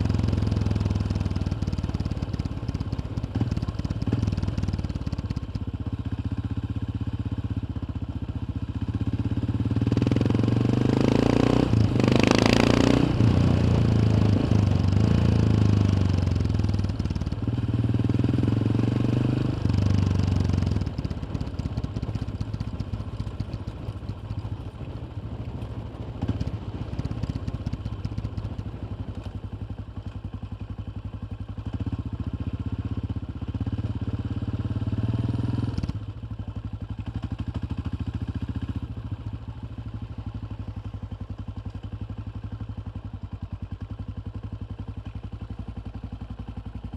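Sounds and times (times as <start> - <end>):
motorcycle engine revving: 8.8 - 24.5, 31.6 - 39.4.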